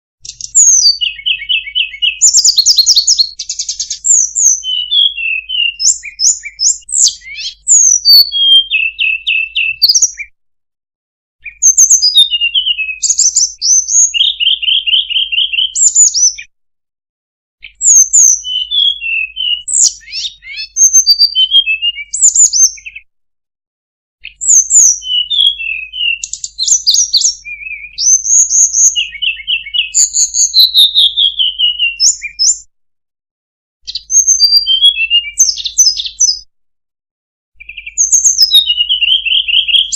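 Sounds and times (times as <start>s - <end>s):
songbird chirping and trilling: 0.2s - 10.4s, 11.4s - 16.5s, 17.6s - 23.1s, 24.2s - 32.7s, 33.8s - 36.5s, 37.6s - 39.9s.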